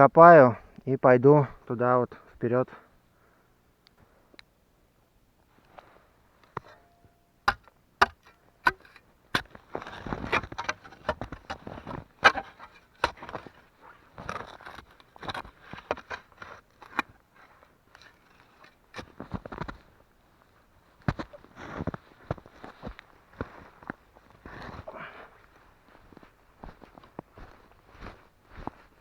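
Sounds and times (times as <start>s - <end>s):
knocks and scrapes filling hole: 7.5s - 13.6s
footsteps crunching in snow: 9.5s - 10.6s, 11.2s - 29.0s.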